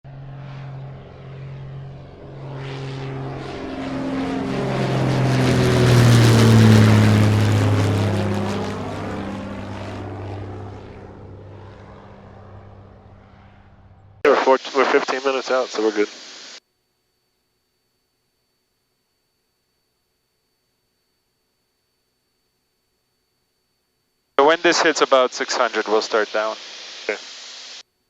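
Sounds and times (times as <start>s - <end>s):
propeller airplane flying past: 0.1s - 14.2s.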